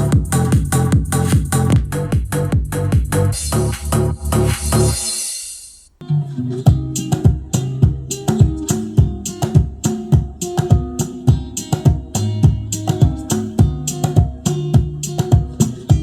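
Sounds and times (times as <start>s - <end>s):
steady drum beat: 0.0s - 4.9s, 6.7s - 16.0s
guitar-led music: 6.0s - 16.0s.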